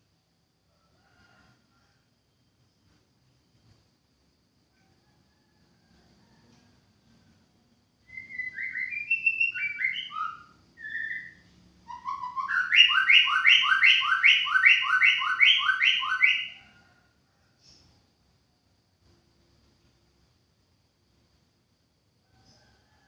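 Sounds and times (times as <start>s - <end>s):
bird singing whistled phrases: 8.1s - 16.6s.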